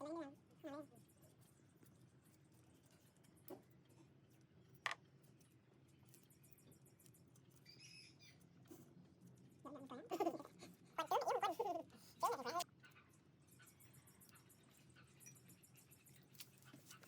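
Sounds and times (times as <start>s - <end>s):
faint chirp: 5.3s - 9.7s, 12.0s - 17.0s.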